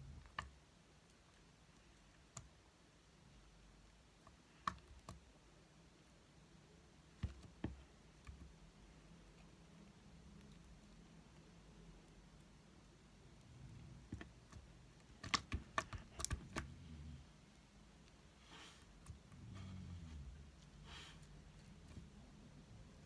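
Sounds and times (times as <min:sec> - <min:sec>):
small sharp clicks and taps: 0:03.8 - 0:05.3, 0:07.1 - 0:16.7.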